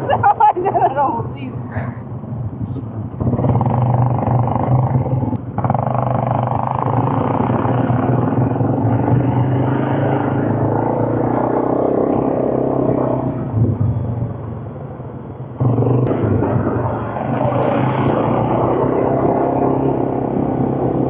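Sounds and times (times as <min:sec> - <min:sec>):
quad bike engine running: 0:03.1 - 0:14.0, 0:15.6 - 0:21.0.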